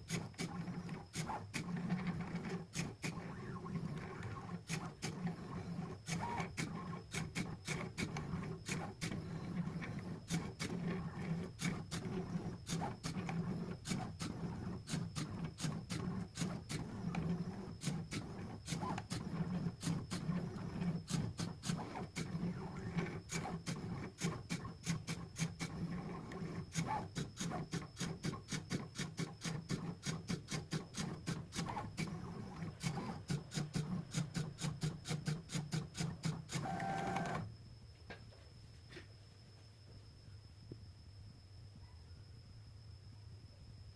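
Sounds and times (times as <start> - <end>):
plotter motors humming: 0.0 - 37.5.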